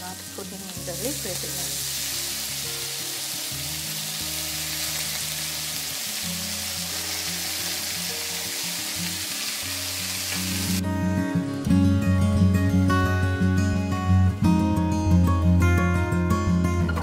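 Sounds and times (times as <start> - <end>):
hot oil sizzling in a wok: 0.0 - 10.8
soft background music: 0.0 - 17.0.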